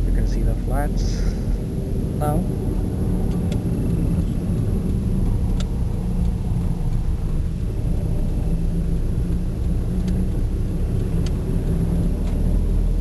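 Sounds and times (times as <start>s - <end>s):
car engine cruising: 0.0s - 13.0s
road noise: 0.0s - 13.0s
faint clicks: 4.8s - 7.4s, 9.2s - 12.4s.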